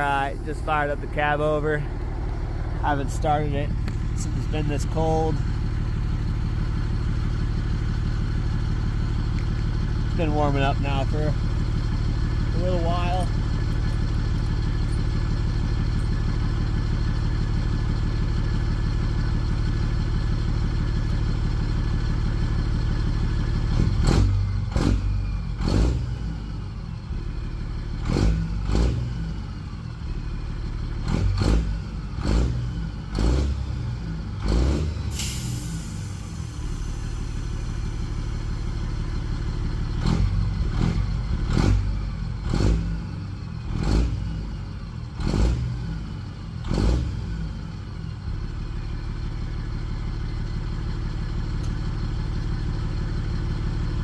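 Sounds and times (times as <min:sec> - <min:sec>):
diesel truck engine idling and revving: 0:00.0 - 0:54.0
brief hiss: 0:35.2 - 0:36.8.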